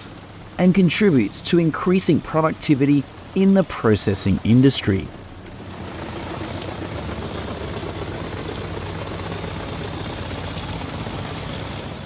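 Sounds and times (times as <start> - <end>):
rushing noise: 4.0 - 12.0
wood chipper engine drone: 5.1 - 12.0.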